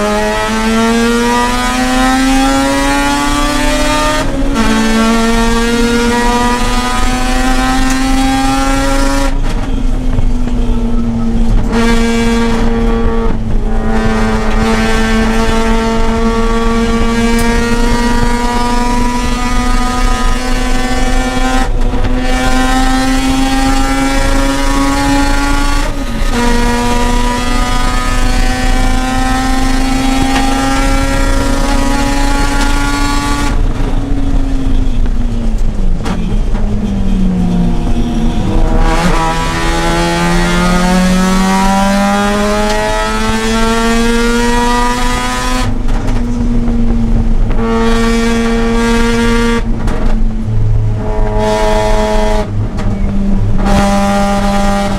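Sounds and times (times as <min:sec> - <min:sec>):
rotary car engine revving: 0:00.0 - 0:54.9.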